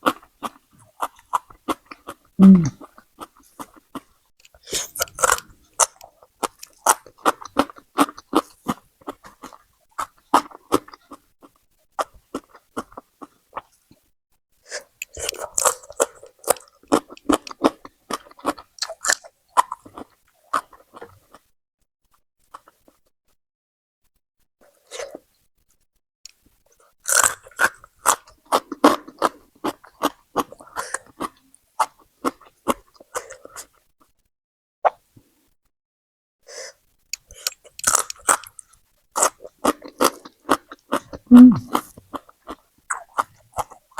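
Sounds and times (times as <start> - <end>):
person chewing food: 0.0 - 13.8, 14.8 - 21.5, 27.1 - 33.7, 37.2 - 43.9.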